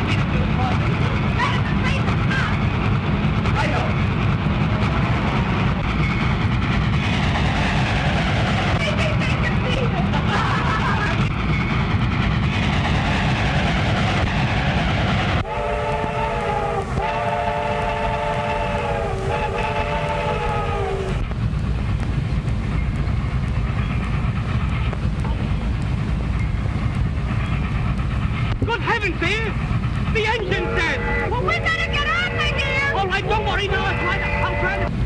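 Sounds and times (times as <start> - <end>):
steady low rumble: 0.0 - 35.0
steam locomotive whistle: 15.4 - 21.2, 30.3 - 34.9.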